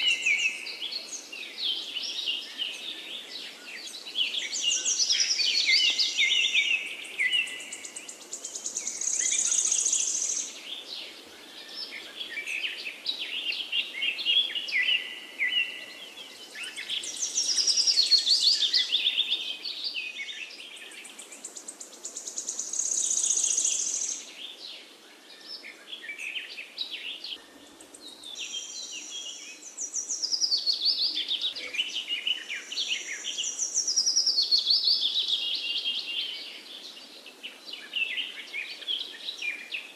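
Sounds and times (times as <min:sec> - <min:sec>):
faint background hiss: 0:00.0 - 0:39.9
songbirds singing: 0:00.0 - 0:39.9.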